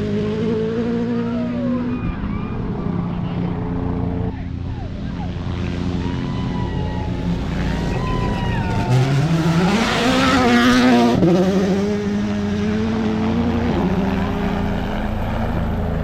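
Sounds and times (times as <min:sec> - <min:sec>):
rally car engine accelerating: 0:00.0 - 0:16.0.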